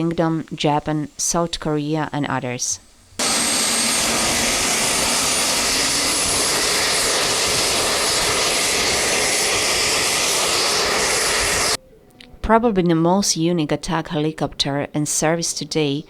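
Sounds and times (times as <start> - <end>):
helicopter engines and rotor: 3.2 - 11.8.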